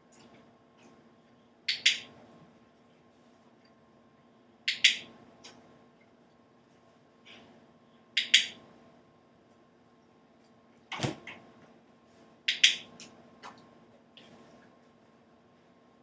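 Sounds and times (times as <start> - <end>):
faint steady hum: 0.0 - 16.0
sharp clicks: 1.7 - 2.1, 4.7 - 5.6, 8.2 - 8.6, 12.5 - 13.6.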